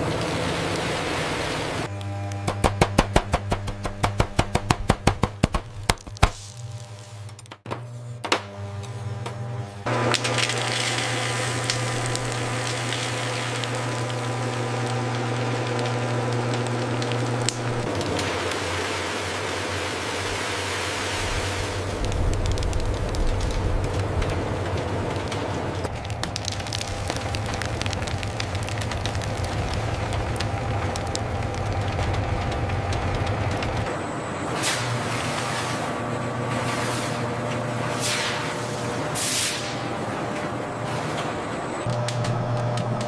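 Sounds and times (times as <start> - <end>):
machine hum: 0.0 - 43.0
machine sharp cracking clicks: 21.8 - 33.9.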